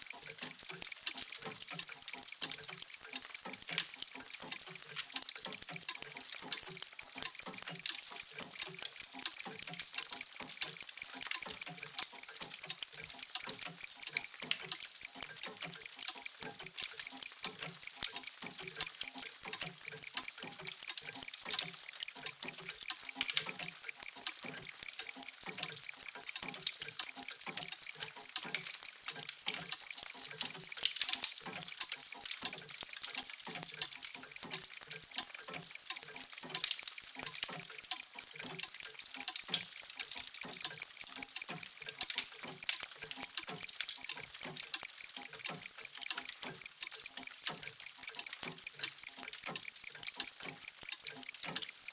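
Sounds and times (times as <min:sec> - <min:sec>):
many mechanical clocks ticking: 0:00.0 - 0:51.9.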